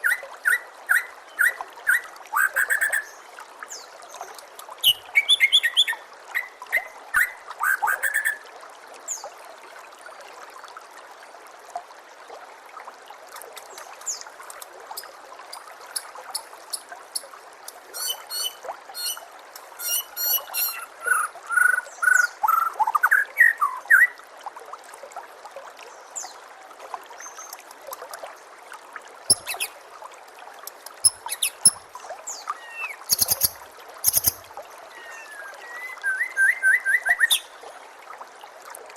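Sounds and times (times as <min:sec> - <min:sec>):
water trickling: 0:00.0 - 0:38.9
bird singing whistles: 0:18.0 - 0:19.2, 0:32.8 - 0:33.5, 0:34.1 - 0:34.3, 0:35.3 - 0:37.4.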